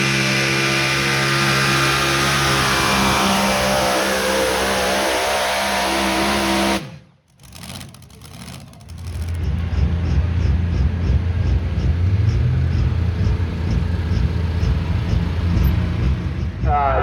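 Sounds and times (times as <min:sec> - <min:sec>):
truck engine revving high: 0:00.0 - 0:17.0
low pulsing engine rumble: 0:07.4 - 0:17.0.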